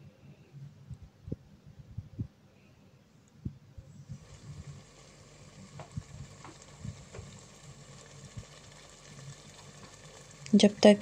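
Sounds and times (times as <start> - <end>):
potatoes sizzling in a pot: 4.1 - 11.0.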